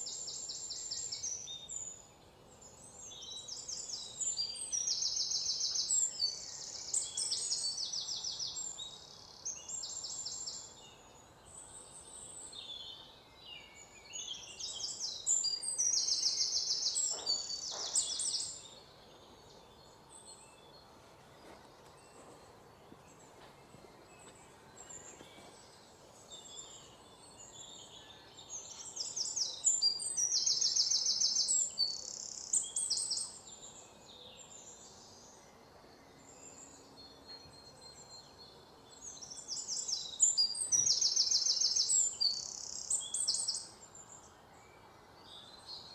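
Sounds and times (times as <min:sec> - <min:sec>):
birds chirping in rapid high trills: 0:00.0 - 0:45.9.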